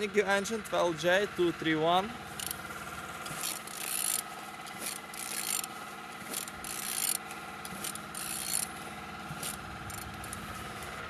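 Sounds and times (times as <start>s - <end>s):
ratchet wrench clicking: 2.3s - 2.6s, 3.2s - 10.6s.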